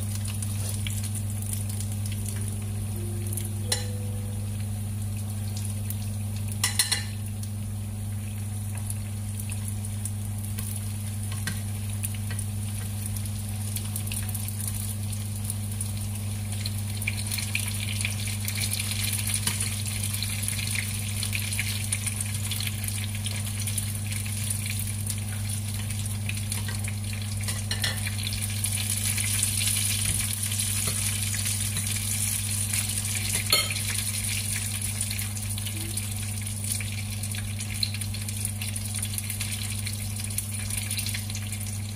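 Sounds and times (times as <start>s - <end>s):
dumplings sizzling in oil: 0.0s - 41.9s
low hum: 1.3s - 8.2s.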